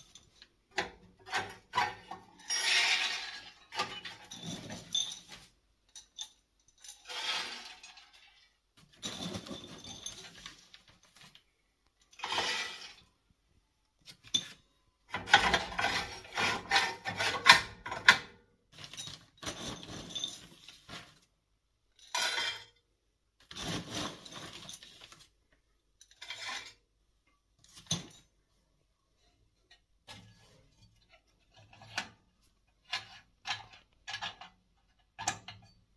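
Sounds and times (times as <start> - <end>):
metal objects clinking and rattling: 0.0 - 13.1, 16.9 - 21.2, 23.6 - 25.3.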